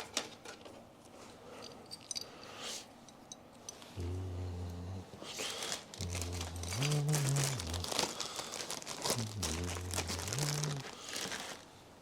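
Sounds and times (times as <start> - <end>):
person humming a tune: 4.0 - 5.0, 6.0 - 8.1, 9.0 - 11.0
plastic bag crinkling: 5.4 - 11.8.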